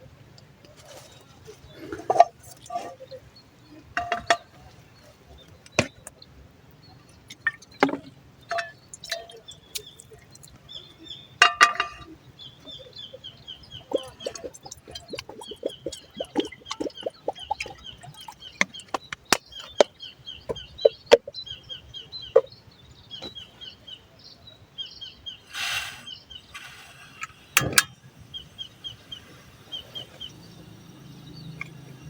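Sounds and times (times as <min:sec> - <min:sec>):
bird chirping: 0:06.8 - 0:32.0.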